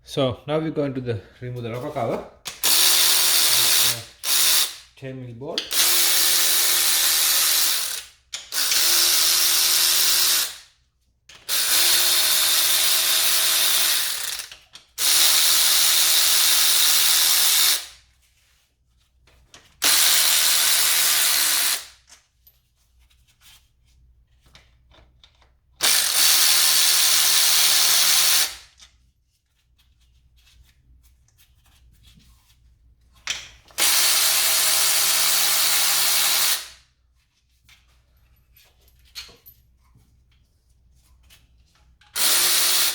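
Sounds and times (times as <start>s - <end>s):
power ratchet spinning: 2.5s - 4.9s, 5.7s - 10.7s, 11.4s - 18.0s, 19.8s - 22.0s, 25.8s - 28.7s, 33.7s - 36.8s, 42.1s - 42.9s.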